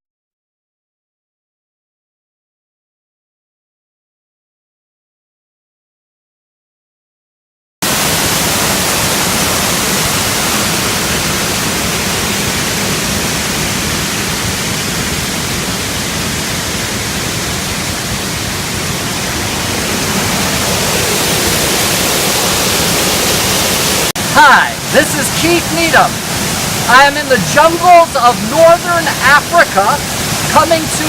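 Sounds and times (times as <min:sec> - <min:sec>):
waterfall rushing: 0:07.8 - 0:31.0.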